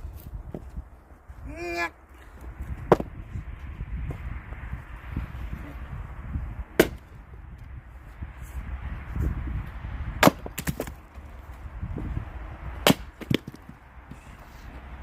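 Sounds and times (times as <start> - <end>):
axe striking wood: 6.8 - 7.1, 10.2 - 11.0, 12.8 - 13.7
wood cracking as it splits: 10.2 - 11.0.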